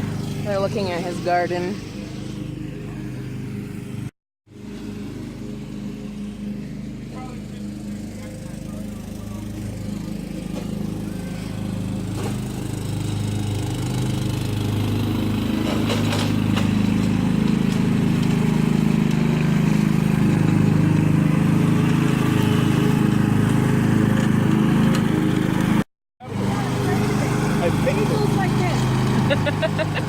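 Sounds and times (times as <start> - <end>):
riding lawnmower engine running: 0.0 - 30.0.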